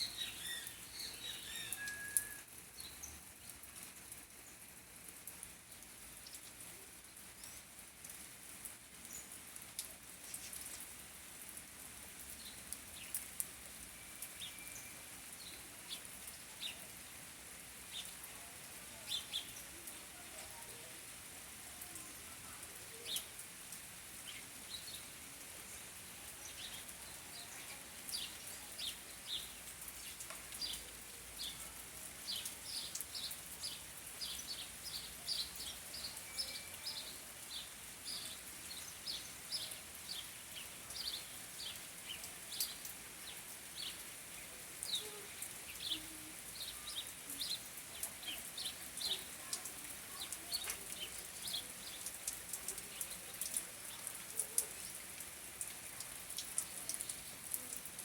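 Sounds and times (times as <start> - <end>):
birds chirping: 0.0 - 2.3.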